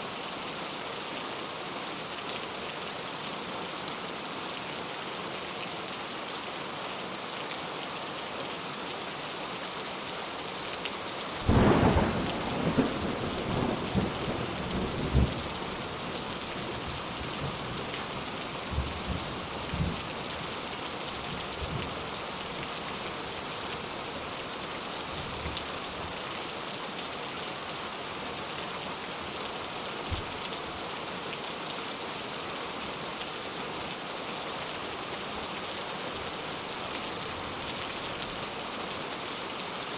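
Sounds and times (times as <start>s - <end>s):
steady rain hissing: 0.0s - 39.9s
thunder rumbling: 11.5s - 15.5s.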